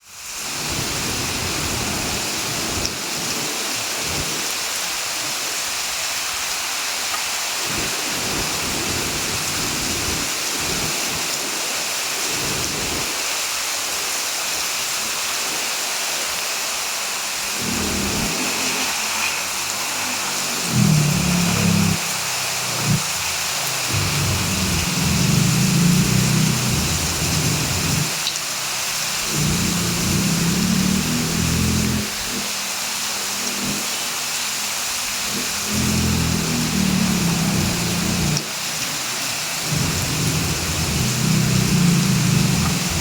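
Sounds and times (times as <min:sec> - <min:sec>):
heavy rain falling: 0:00.0 - 0:43.0
low rumbles: 0:20.6 - 0:28.3, 0:29.2 - 0:32.2, 0:35.4 - 0:38.4, 0:39.6 - 0:43.0.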